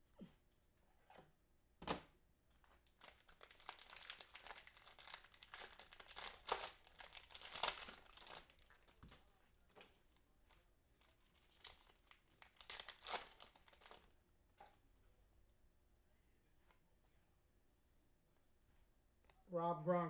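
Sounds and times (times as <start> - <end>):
plastic wrapper tearing and crinkling: 2.6 - 14.1.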